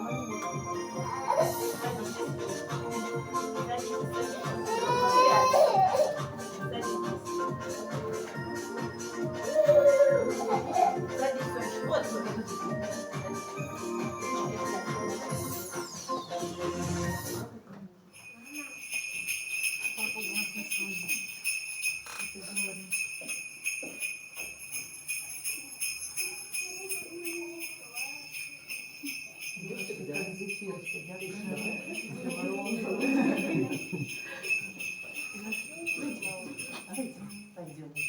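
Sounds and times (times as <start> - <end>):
sleigh bells jingling: 0.0 - 17.5, 18.1 - 38.0
murmur of voices: 0.0 - 17.7, 26.3 - 37.6.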